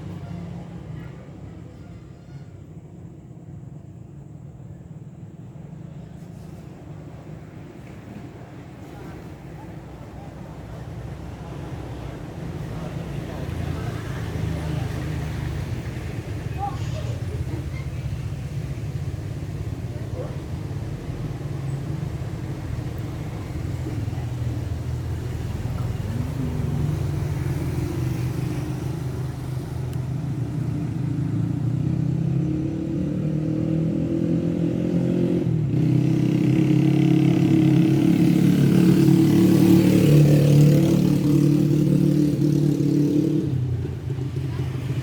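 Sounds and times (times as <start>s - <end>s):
motor vehicle engine running: 9.6s - 33.0s.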